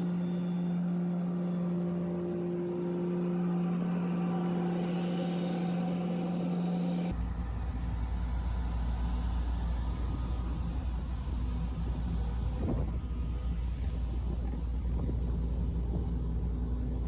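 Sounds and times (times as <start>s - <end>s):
engine drone: 0.0s - 17.0s
deep rough rumble: 7.1s - 17.0s.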